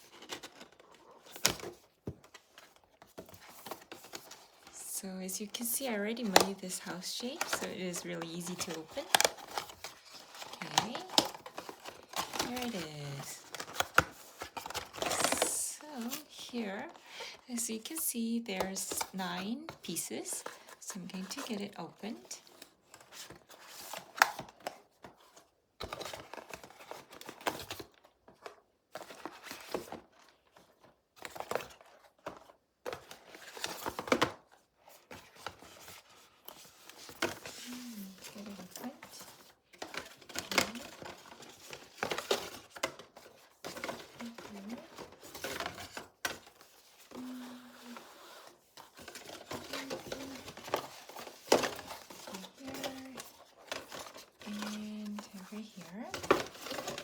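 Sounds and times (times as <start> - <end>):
packaging crinkling and tearing: 5.4 - 18.0, 36.6 - 57.0.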